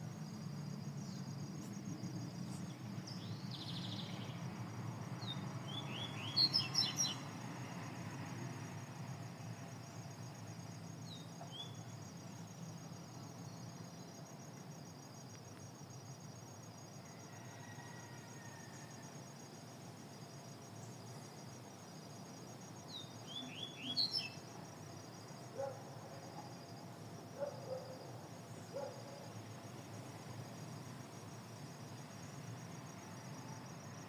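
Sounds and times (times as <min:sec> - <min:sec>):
insect trill: 0:00.0 - 0:34.0
songbird chirping: 0:01.1 - 0:07.4, 0:11.0 - 0:12.0, 0:22.8 - 0:24.6.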